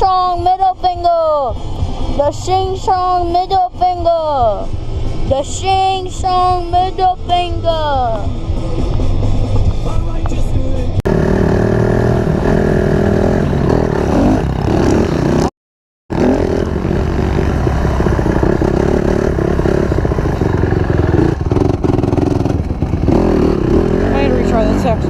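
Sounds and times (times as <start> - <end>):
dirt bike engine revving: 11.1 - 15.5, 16.1 - 25.0.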